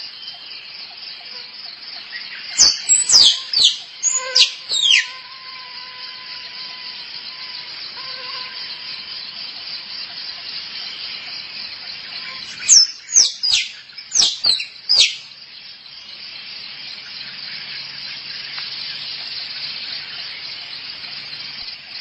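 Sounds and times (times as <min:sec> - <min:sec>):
high insect hiss: 0:00.0 - 0:22.0
squirrel chirps: 0:02.6 - 0:05.2, 0:12.2 - 0:15.2.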